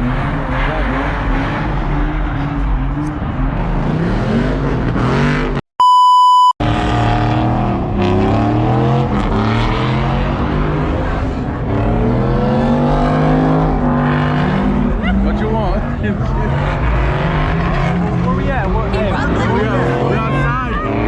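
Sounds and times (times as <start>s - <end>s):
car engines revving: 0.0s - 5.6s, 6.6s - 21.0s
electronic censor beep: 5.8s - 6.6s.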